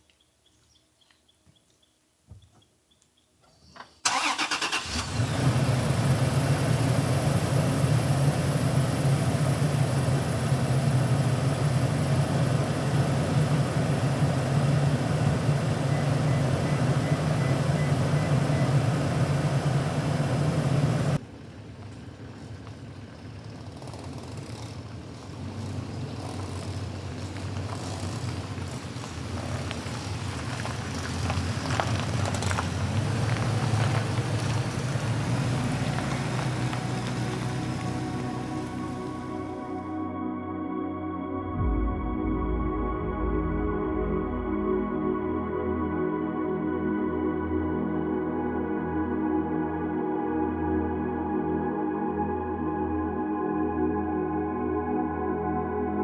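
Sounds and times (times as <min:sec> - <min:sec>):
road noise: 0:03.4 - 0:40.0
truck engine cranking and starting: 0:03.5 - 0:39.9
truck engine humming: 0:03.8 - 0:40.0.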